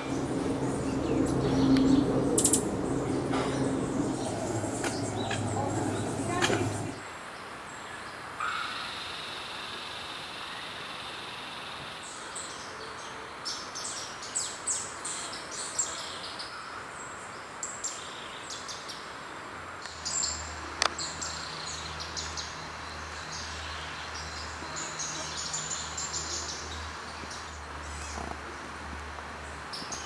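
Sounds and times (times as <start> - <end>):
birds chirping and whistling: 0.0 - 7.0
low hum: 0.0 - 7.0
steady background hiss: 0.0 - 7.0.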